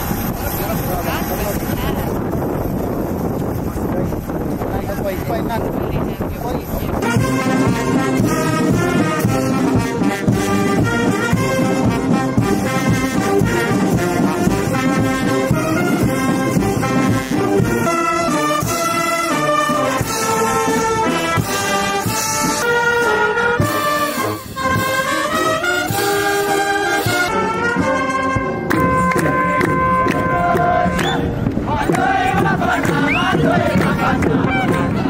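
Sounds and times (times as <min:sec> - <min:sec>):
brass band playing: 0:06.7 - 0:35.0.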